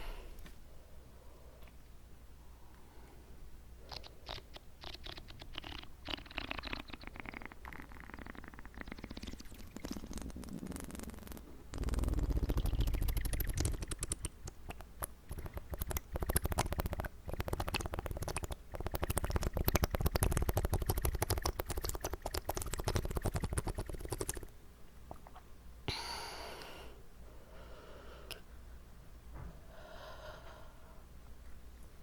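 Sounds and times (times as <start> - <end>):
wet mouth clicks and smacks: 3.9 - 24.5.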